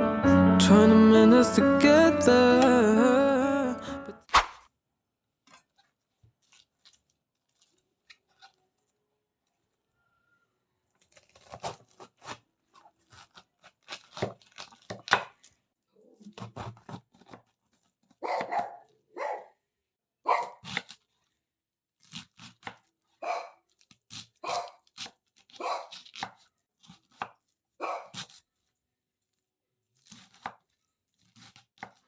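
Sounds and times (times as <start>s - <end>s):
dog barking: 18.2s - 19.6s, 20.3s - 20.6s, 23.2s - 23.6s, 24.4s - 24.8s, 25.6s - 26.0s, 27.8s - 28.2s.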